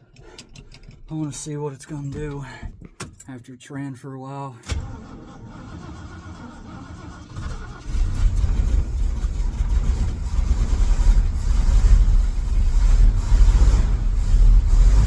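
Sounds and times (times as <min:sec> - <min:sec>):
truck engine starting and running: 0:04.6 - 0:15.0.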